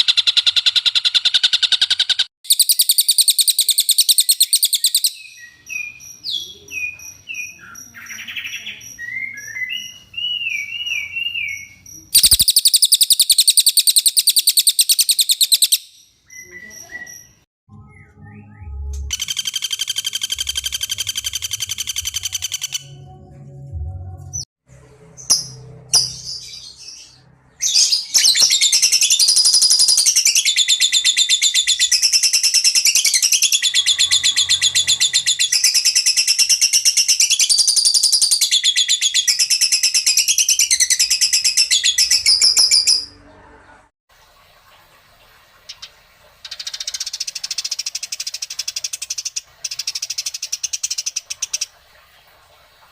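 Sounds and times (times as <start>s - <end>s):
songbird buzzy trills: 0.0s - 23.0s.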